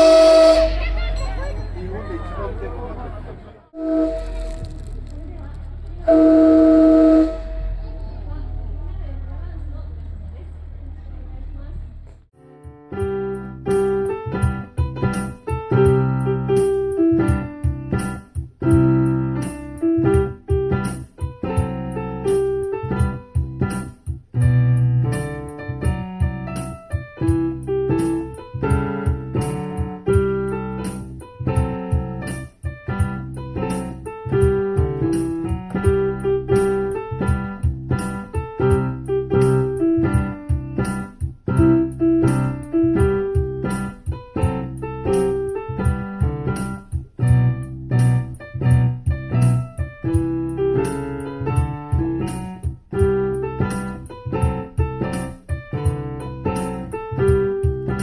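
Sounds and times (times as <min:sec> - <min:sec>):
solo piano melody: 0:12.3 - 0:58.0.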